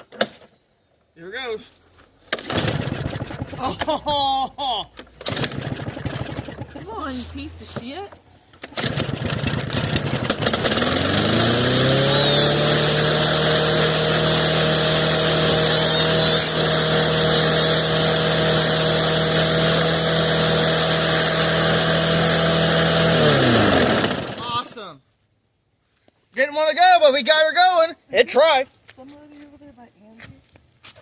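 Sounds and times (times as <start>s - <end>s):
lawn mower engine starting: 2.3s - 4.3s, 5.0s - 24.8s.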